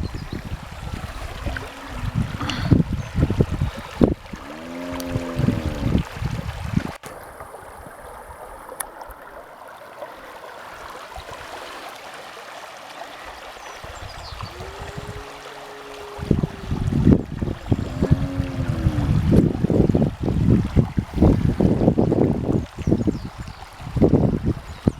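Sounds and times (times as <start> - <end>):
wind buffeting microphone: 0.0 - 7.0, 13.8 - 24.9
running water rushing: 0.0 - 24.9
drawn-out pitched call: 14.5 - 19.0.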